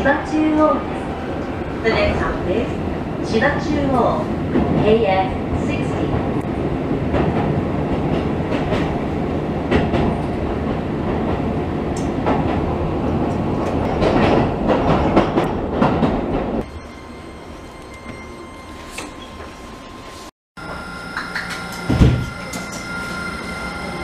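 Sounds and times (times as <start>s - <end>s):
train rumbling over rails: 0.0s - 18.7s.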